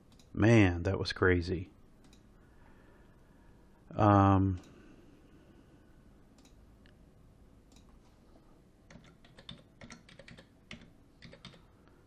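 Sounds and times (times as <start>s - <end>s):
computer keyboard typing: 8.9s - 11.7s.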